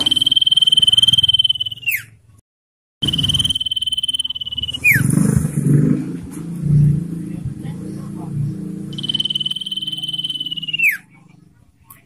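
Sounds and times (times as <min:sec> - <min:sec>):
bird trilling call: 0:00.0 - 0:02.2, 0:03.0 - 0:05.3, 0:08.9 - 0:11.2
low rumbling noise: 0:03.0 - 0:10.8.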